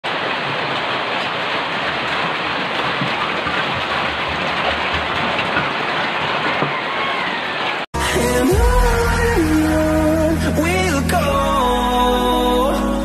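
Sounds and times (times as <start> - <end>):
heavy rain hissing: 6.9 - 13.0.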